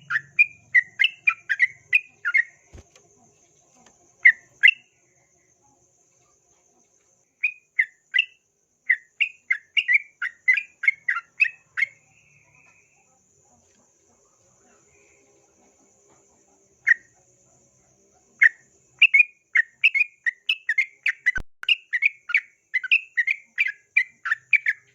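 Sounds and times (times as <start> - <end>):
faint high-pitched hiss: 1.5 - 19.5.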